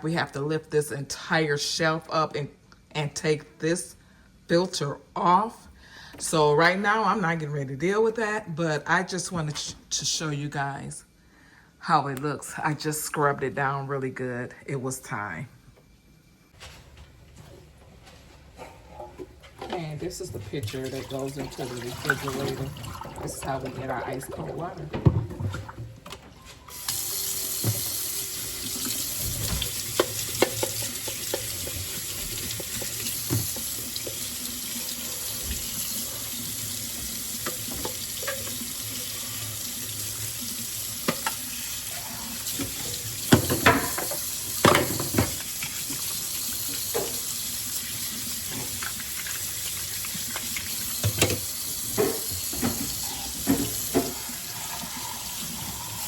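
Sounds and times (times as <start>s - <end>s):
knocks and clunks in sink: 19.0s - 26.2s, 42.5s - 45.4s, 50.9s - 54.3s
tap water running: 19.0s - 56.0s.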